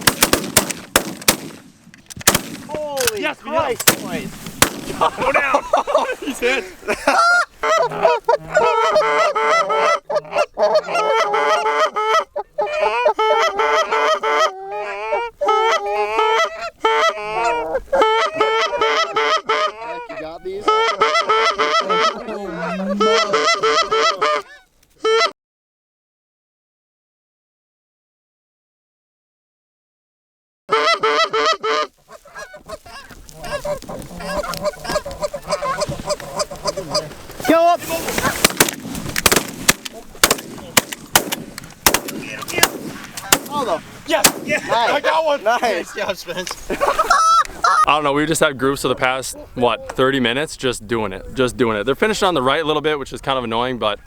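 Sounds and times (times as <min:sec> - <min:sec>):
goose honking and clucking: 0:04.9 - 0:25.3, 0:30.7 - 0:40.3, 0:41.1 - 0:47.9.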